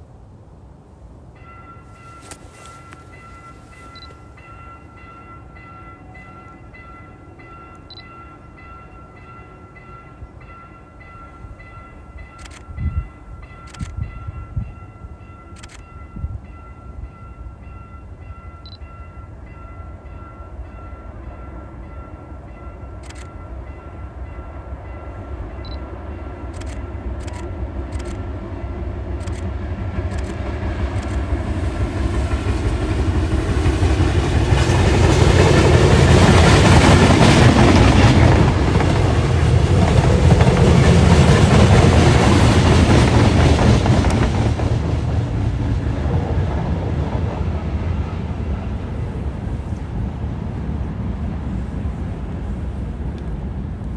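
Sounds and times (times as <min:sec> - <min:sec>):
train rumble: 0:00.0 - 0:53.9
sharp clicks: 0:26.5 - 0:28.2, 0:30.1 - 0:31.3.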